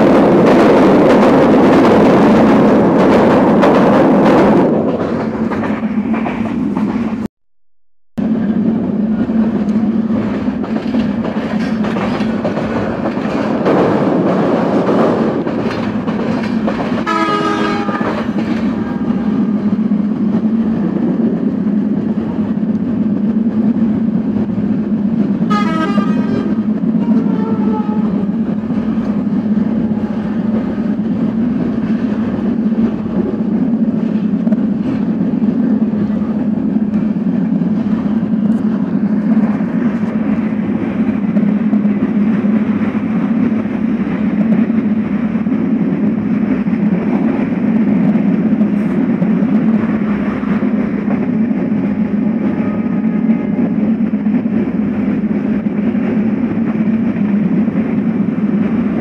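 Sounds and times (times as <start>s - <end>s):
train wheels rumbling: 0.0s - 7.3s, 8.2s - 59.0s
train horn: 17.0s - 18.2s, 25.5s - 28.3s, 52.5s - 53.5s.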